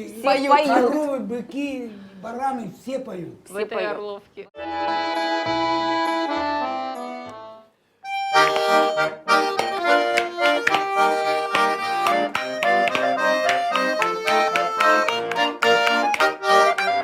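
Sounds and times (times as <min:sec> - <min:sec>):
button accordion folk tune: 0:04.6 - 0:17.0.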